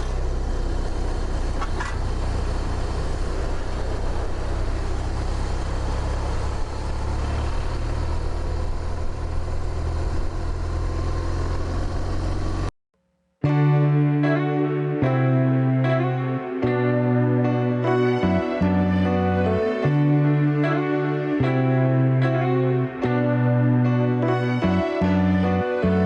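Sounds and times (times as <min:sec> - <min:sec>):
motorcycle engine running: 0:00.0 - 0:12.7
wind and road noise: 0:00.0 - 0:12.7.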